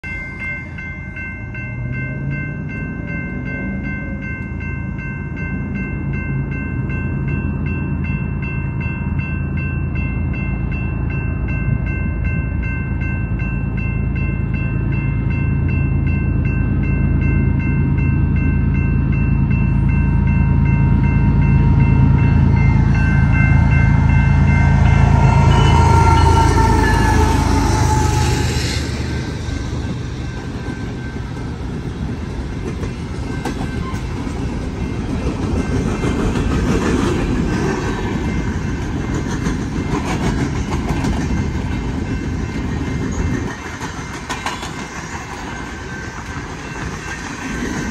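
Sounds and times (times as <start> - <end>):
crossing signal bell ringing: 0.0 - 36.6, 41.3 - 47.9
diesel locomotive engine rumble: 0.4 - 47.9
locomotive horn: 23.2 - 29.2.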